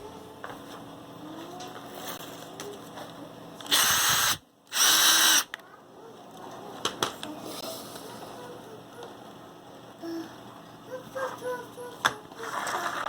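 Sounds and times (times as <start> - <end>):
power drill running: 3.7 - 5.5.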